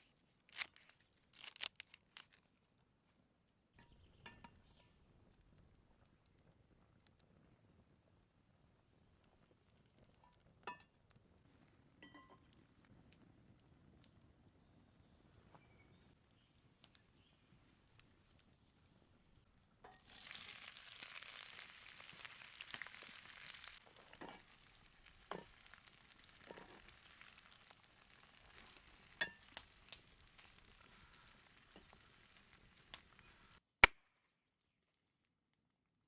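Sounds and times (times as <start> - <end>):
meat sizzling in a pan: 19.9 - 33.6.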